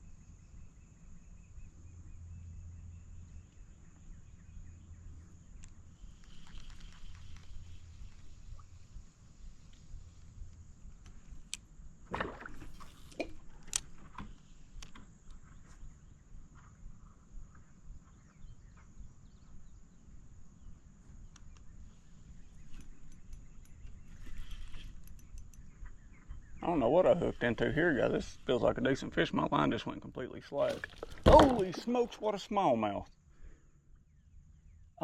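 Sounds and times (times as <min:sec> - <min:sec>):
low steady rumble: 0:07.1 - 0:12.1
fishing gear clicks and knocks: 0:10.5 - 0:15.4, 0:22.6 - 0:25.7, 0:30.6 - 0:32.1
quick ticks: 0:24.8 - 0:25.7.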